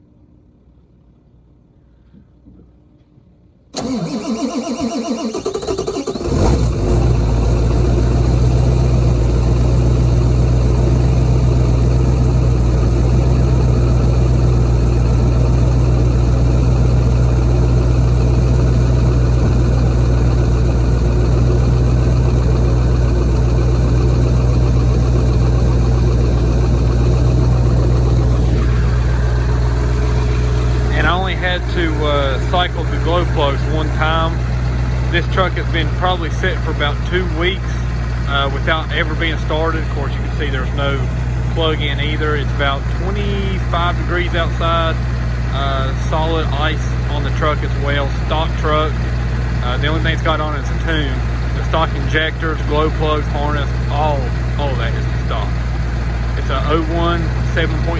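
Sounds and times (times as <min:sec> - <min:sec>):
starter motor cranking: 0:03.8 - 0:09.2, 0:16.7 - 0:40.7
diesel engine idling loudly: 0:03.8 - 0:57.9.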